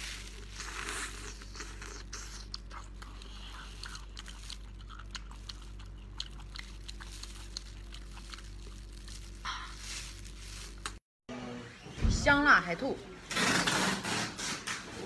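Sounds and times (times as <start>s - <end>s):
steady low hum: 0.0s - 13.4s
wet chewing and mouth smacks: 0.5s - 9.4s.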